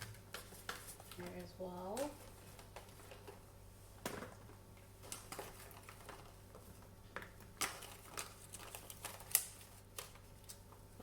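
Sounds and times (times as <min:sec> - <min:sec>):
containers clicking and rustling: 0:04.1 - 0:10.2.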